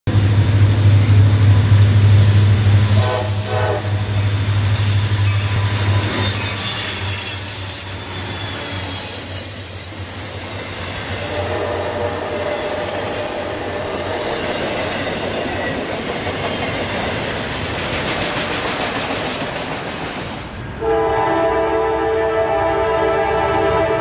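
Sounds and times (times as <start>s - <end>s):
train rumbling: 0.1s - 24.0s
high squeals: 4.8s - 15.8s.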